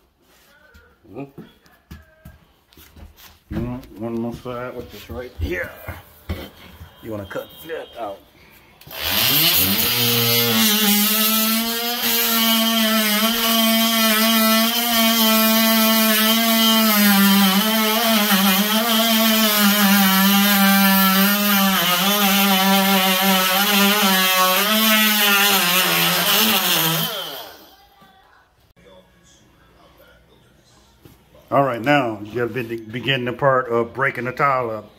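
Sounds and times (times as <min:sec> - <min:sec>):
power tool cutting grout: 0:08.8 - 0:27.8.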